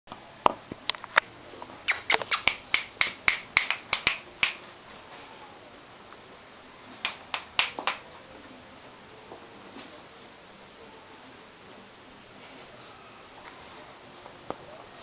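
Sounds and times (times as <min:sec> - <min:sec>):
sharp clicks: 0:01.9 - 0:04.6, 0:07.0 - 0:08.0.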